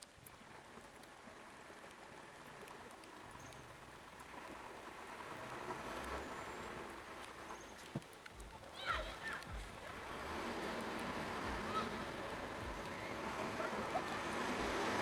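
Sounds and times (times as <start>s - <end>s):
steady rain falling: 0.0s - 15.0s
small drips or taps: 7.1s - 10.0s.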